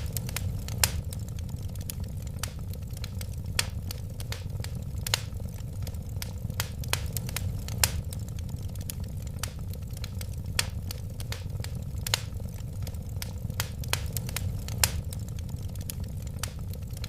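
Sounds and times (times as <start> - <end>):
fire popping and snapping: 0.0 - 17.0
low rumble of flames: 0.0 - 17.0
wood fire crackling: 0.0 - 17.0.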